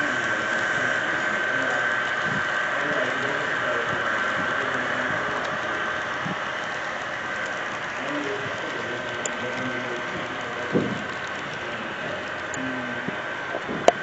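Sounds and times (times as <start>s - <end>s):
model train motor humming: 0.0s - 14.0s
faint wheel clicks: 5.4s - 14.0s.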